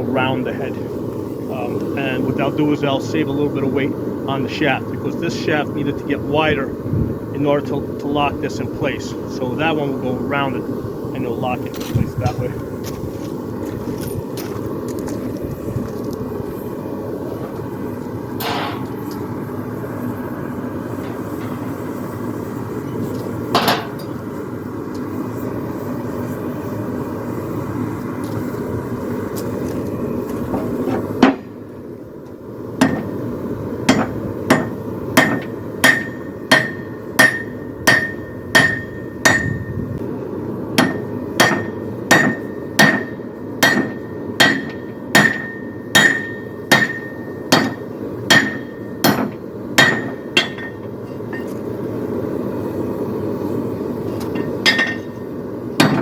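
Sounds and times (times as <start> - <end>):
steady rushing noise: 0.0 - 56.0
hammer striking steel on anvil: 18.4 - 19.1, 23.5 - 24.2, 32.8 - 33.1, 33.9 - 39.7, 40.8 - 51.6, 54.3 - 55.2, 55.8 - 56.0.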